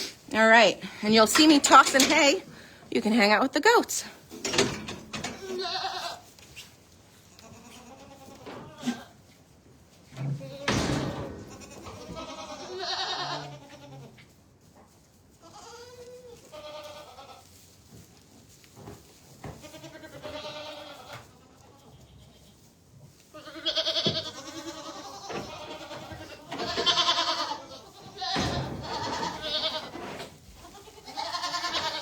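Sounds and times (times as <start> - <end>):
goats bleating: 5.3 - 6.2, 7.3 - 9.2, 11.5 - 14.2, 15.4 - 17.4, 19.6 - 22.4, 23.3 - 29.9, 30.6 - 32.0.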